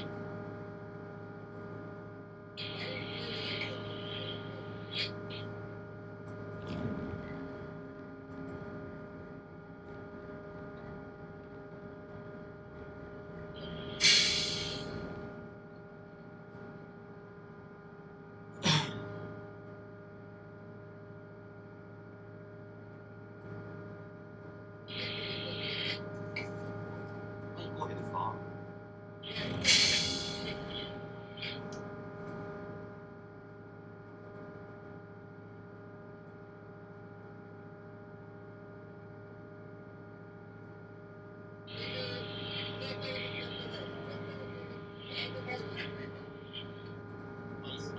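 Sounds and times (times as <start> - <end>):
diesel engine humming: 0.0 - 17.2, 29.0 - 32.3, 41.6 - 47.9.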